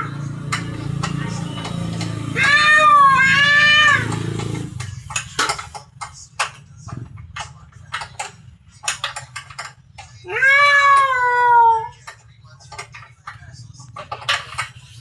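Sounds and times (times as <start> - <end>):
cat meowing: 2.3 - 4.1, 10.2 - 12.0.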